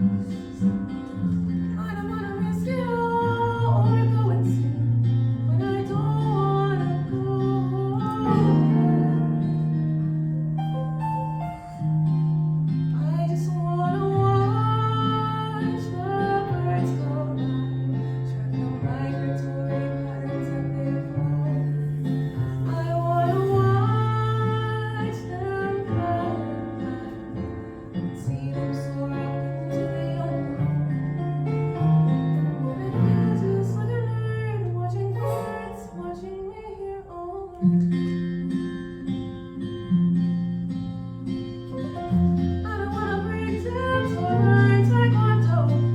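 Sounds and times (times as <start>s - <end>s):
woman singing: 0.0s - 10.1s, 12.9s - 31.3s, 32.4s - 39.9s, 42.1s - 45.9s
instrumental accompaniment: 7.7s - 36.4s.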